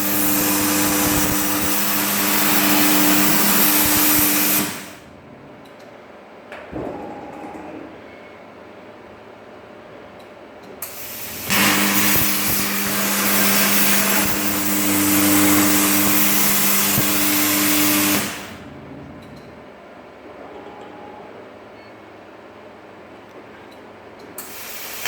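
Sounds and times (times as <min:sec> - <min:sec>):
plasma cutter hissing: 0:00.0 - 0:05.0, 0:10.8 - 0:18.7, 0:24.4 - 0:25.0
steady hum: 0:00.0 - 0:24.1.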